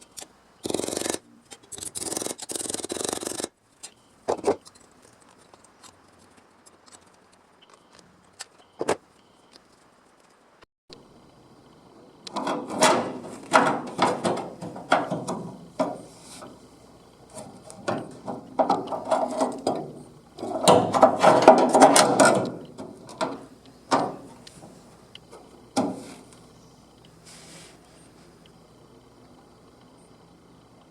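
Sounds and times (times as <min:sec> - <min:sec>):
mechanical clattering and knocking: 0:12.2 - 0:16.6, 0:17.3 - 0:26.0.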